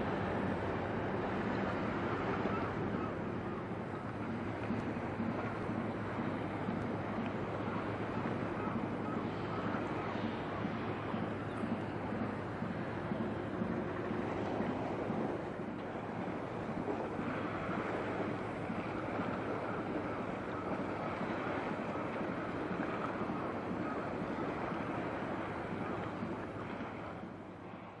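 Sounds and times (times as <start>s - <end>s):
water noise: 0.0s - 28.0s
wind on microphone: 0.0s - 28.0s.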